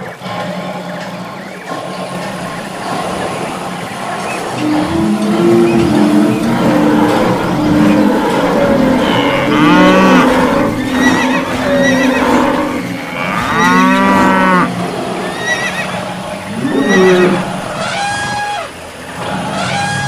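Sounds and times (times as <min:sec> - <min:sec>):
noisy background: 0:00.0 - 0:20.0
cattle mooing: 0:04.4 - 0:20.0.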